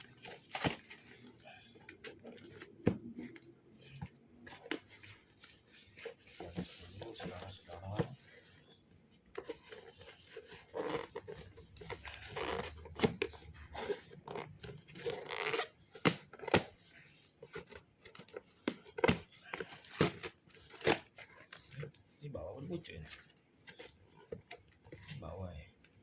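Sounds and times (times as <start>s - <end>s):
packaging ripping and crinkling: 0.0s - 2.9s, 18.1s - 21.9s.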